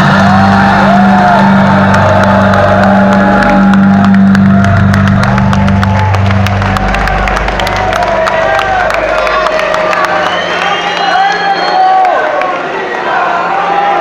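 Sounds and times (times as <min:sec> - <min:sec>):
trance music over sound system: 0:00.0 - 0:10.6
crowd noise: 0:00.0 - 0:14.0.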